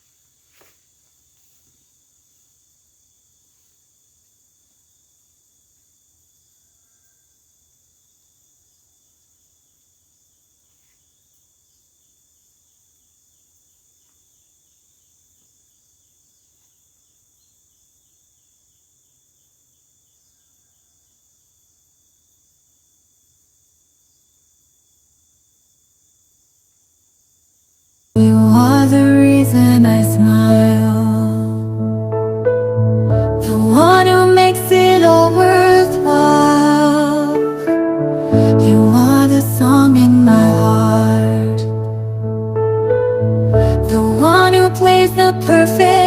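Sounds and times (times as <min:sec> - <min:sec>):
insect chorus drone: 0:00.0 - 0:46.0.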